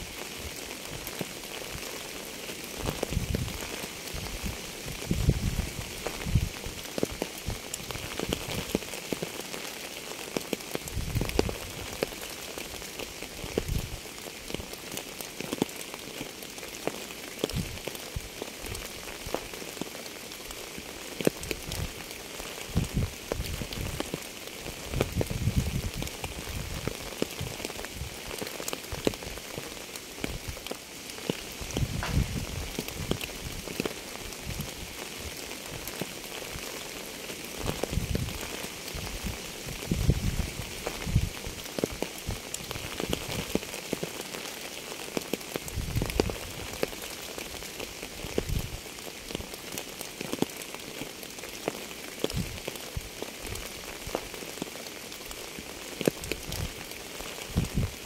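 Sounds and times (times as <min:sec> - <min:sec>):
steady rain falling: 0:00.0 - 0:58.0
low dull rumble: 0:31.8 - 0:32.8.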